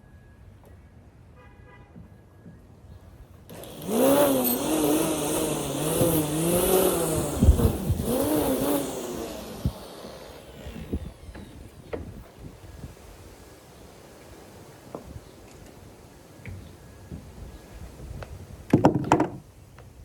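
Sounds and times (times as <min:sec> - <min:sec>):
grass cutter engine revving: 0:03.5 - 0:11.8.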